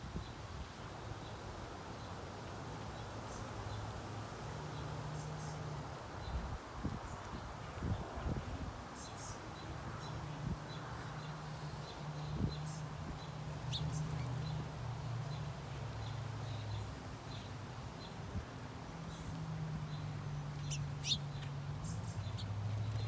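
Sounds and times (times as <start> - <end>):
small birds chirping: 4.5 - 8.4, 9.0 - 23.0.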